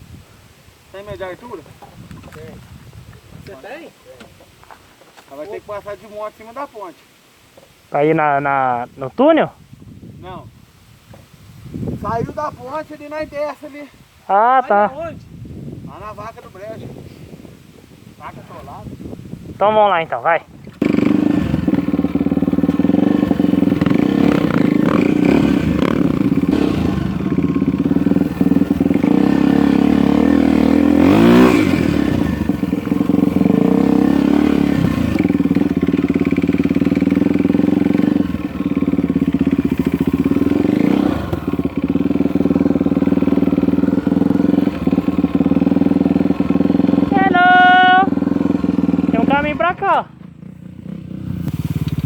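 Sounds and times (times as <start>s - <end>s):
off-road motorcycle engine: 18.2s - 52.0s.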